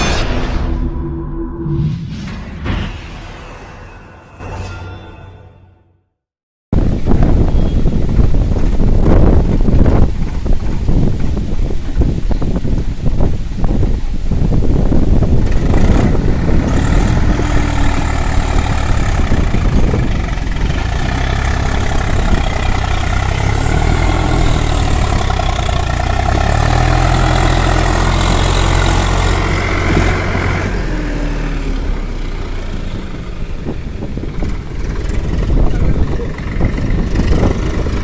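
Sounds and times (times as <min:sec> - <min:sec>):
tractor diesel engine running hard: 0:08.2 - 0:12.7, 0:14.6 - 0:38.0.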